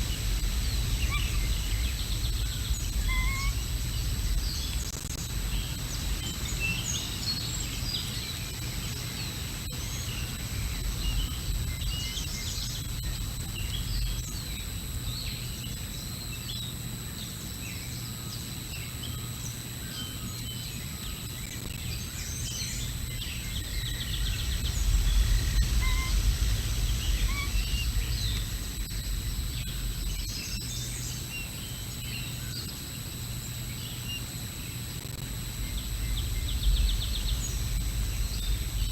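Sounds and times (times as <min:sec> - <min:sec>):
low wind rumble: 0:00.0 - 0:06.6, 0:22.0 - 0:30.7, 0:35.3 - 0:38.9
faint high microphone whine: 0:00.0 - 0:38.9
songbirds chirping: 0:18.0 - 0:32.7, 0:35.4 - 0:38.9.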